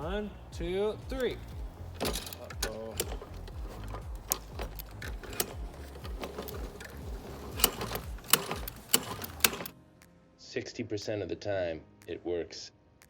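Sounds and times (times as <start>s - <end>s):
lawn mower engine rumble: 0.0s - 9.7s
mechanical clicks and rattles: 1.0s - 9.8s.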